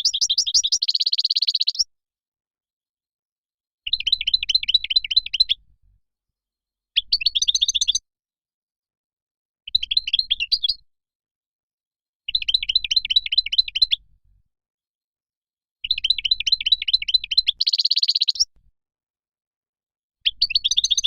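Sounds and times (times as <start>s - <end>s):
goldfinch twittering song: 0.0s - 1.9s, 3.9s - 5.6s, 7.0s - 8.0s, 12.3s - 14.0s, 15.8s - 18.5s, 20.3s - 21.0s.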